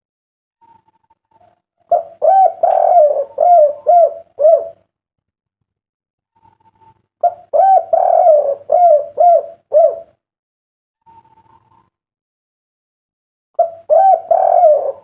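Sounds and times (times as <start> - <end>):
dove cooing: 0.6 - 4.9, 6.4 - 10.2, 13.6 - 15.0.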